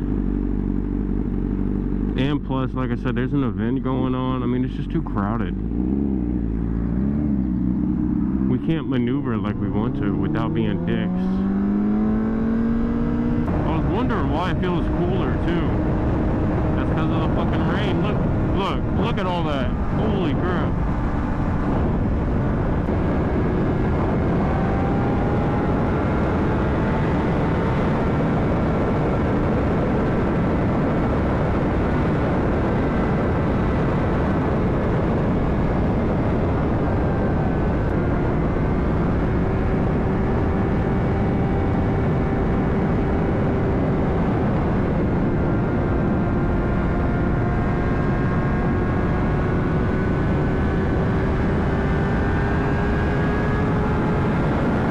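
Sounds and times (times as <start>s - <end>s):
motorcycle engine cruising: 0.0s - 54.9s
wind noise on microphone: 11.4s - 54.9s.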